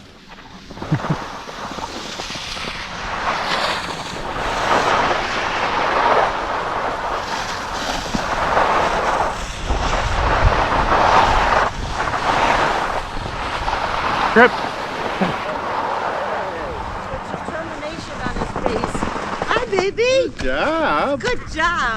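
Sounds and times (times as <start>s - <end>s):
skis scraping over snow: 0.0s - 21.0s
wind buffeting microphone: 0.0s - 21.9s.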